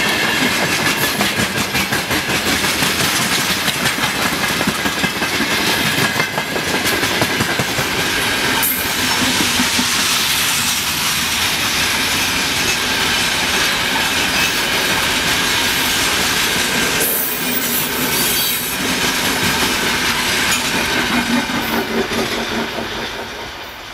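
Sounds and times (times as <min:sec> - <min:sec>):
freight wagons rolling on rails: 0:00.0 - 0:23.8
thin steady wheel squeal: 0:17.1 - 0:18.8.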